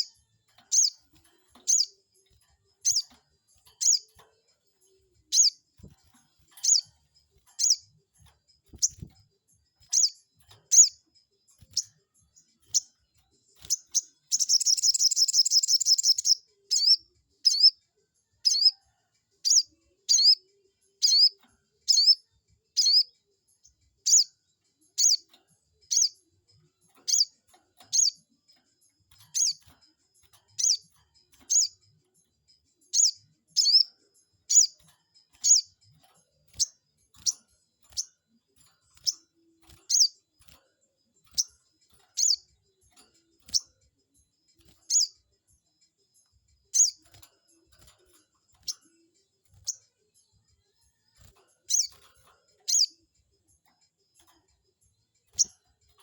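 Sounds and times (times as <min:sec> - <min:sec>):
bird chirping and trilling: 0:00.0 - 0:02.0, 0:02.7 - 0:04.2, 0:04.8 - 0:09.2, 0:09.8 - 0:13.0, 0:13.6 - 0:17.8, 0:18.4 - 0:18.8, 0:19.4 - 0:20.4, 0:21.0 - 0:23.1, 0:24.0 - 0:24.3, 0:24.9 - 0:28.3, 0:29.0 - 0:32.0, 0:32.8 - 0:40.3, 0:41.2 - 0:43.8, 0:44.6 - 0:45.3, 0:46.6 - 0:50.4, 0:51.6 - 0:53.0, 0:55.3 - 0:55.6.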